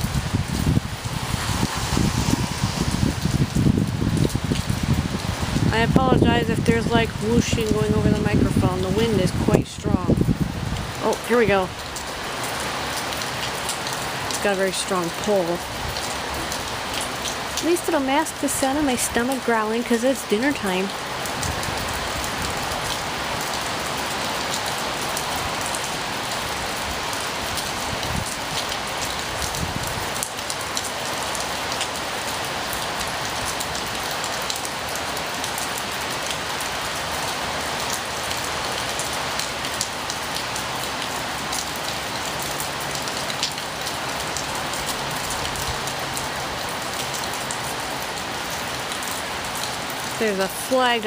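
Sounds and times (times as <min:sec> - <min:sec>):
wind buffets: 0:00.0 - 0:11.6, 0:26.9 - 0:28.6, 0:29.2 - 0:30.1
heavy rain pouring: 0:00.0 - 0:51.0.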